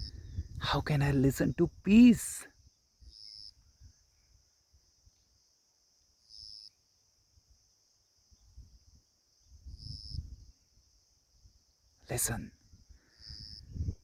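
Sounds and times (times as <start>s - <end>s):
insect chirps: 0.0s - 14.0s
insects humming: 0.0s - 14.0s.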